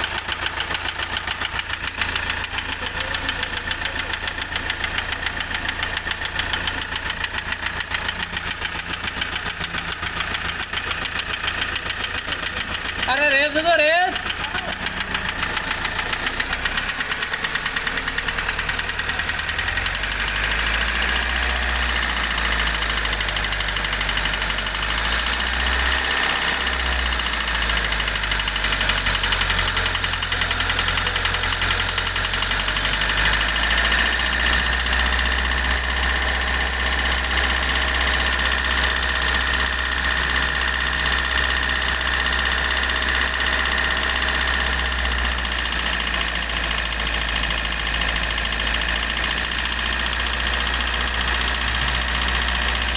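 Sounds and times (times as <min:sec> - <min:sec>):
car engine knocking tick: 0:00.0 - 0:52.9
person talking: 0:13.0 - 0:15.3.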